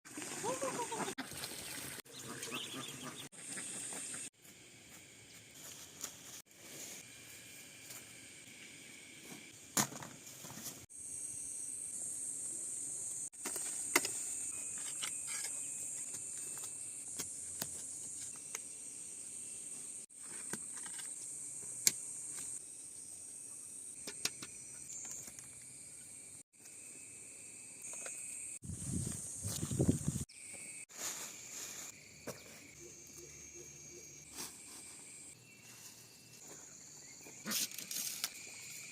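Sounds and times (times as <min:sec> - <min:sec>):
high-pitched insect chorus: 0:10.9 - 0:38.9.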